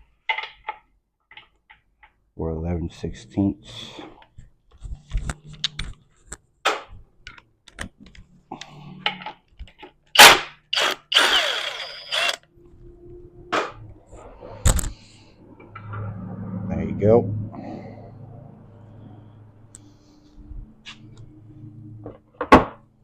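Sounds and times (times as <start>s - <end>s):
power tool running: 10.2s - 12.4s.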